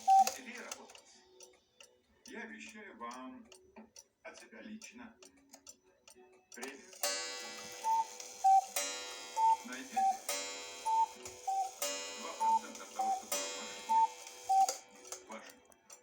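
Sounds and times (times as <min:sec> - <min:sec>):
two-note cuckoo call: 0:00.0 - 0:00.4, 0:07.2 - 0:14.9.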